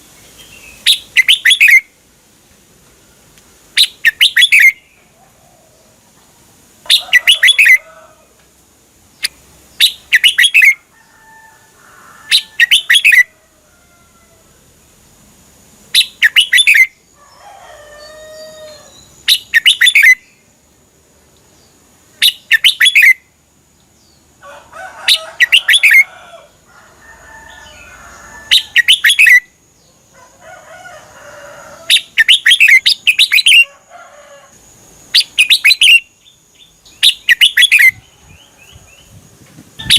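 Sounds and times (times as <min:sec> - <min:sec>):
bulbul singing: 0:00.0 - 0:01.9, 0:03.8 - 0:05.1, 0:06.8 - 0:07.8, 0:09.1 - 0:10.8, 0:12.3 - 0:13.3, 0:15.9 - 0:17.0, 0:18.6 - 0:20.4, 0:21.6 - 0:23.3, 0:25.1 - 0:26.1, 0:28.5 - 0:29.6, 0:31.9 - 0:33.7, 0:35.1 - 0:39.2.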